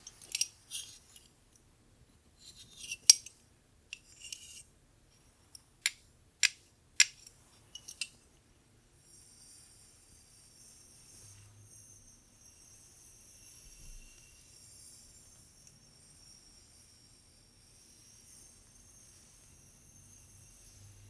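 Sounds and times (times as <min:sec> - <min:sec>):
faint steady hiss: 0:00.0 - 0:21.0.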